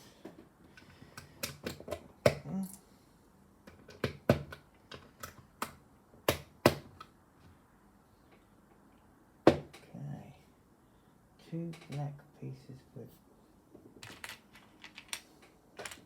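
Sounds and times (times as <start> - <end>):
plastic bricks clicking: 14.0 - 15.2.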